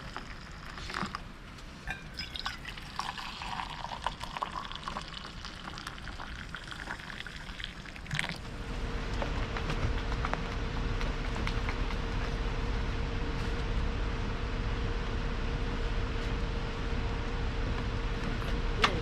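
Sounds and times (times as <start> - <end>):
liquid being poured: 0.0 - 8.5
steady hum with low rumble: 0.0 - 19.0.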